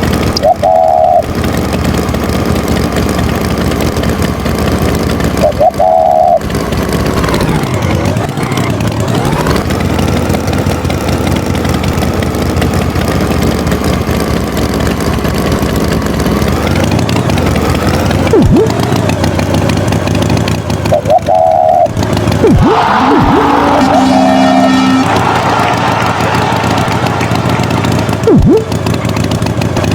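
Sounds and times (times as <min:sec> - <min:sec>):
cartoon tractor engine revving: 0:00.0 - 0:29.9
sliding whistle: 0:00.4 - 0:01.2, 0:05.4 - 0:06.5, 0:20.9 - 0:28.7.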